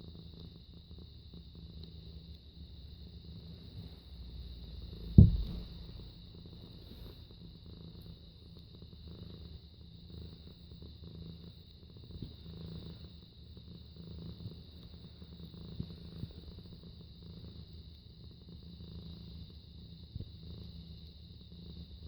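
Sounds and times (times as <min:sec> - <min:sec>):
cat purring: 0:00.0 - 0:22.0
sharp thump: 0:05.2 - 0:05.8.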